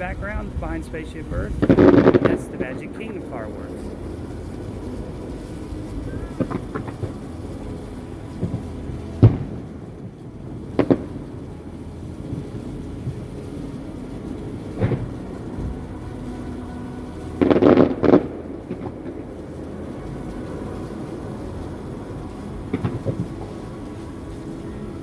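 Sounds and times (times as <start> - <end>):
fireworks popping: 0.0 - 15.9
steady low rumble: 0.0 - 25.0.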